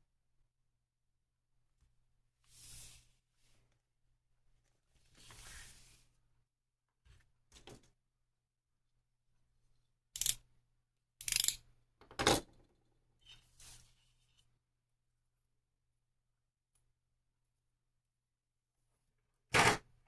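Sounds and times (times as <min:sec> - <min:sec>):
plastic parts and tools clicking: 0:10.2 - 0:10.4, 0:11.2 - 0:12.5.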